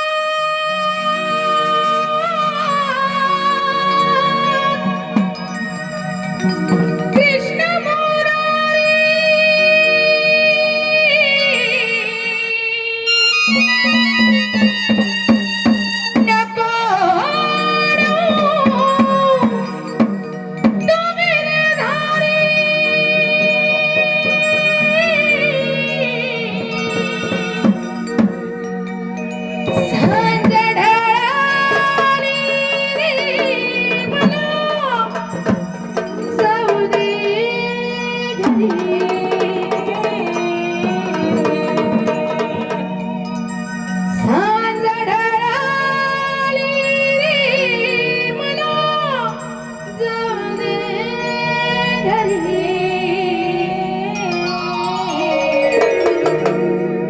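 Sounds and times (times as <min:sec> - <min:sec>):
woman singing devotional song: 0:00.0 - 0:57.0
drum strokes: 0:29.6 - 0:37.8, 0:38.4 - 0:43.0, 0:55.3 - 0:57.0
melodic line with pitch bends: 0:52.1 - 0:57.0.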